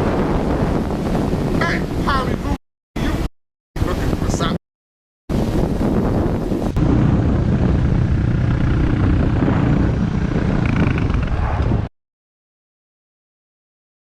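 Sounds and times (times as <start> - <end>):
wind noise: 0.0 - 4.6, 5.3 - 11.9
motorcycle engine rumble: 6.6 - 11.9.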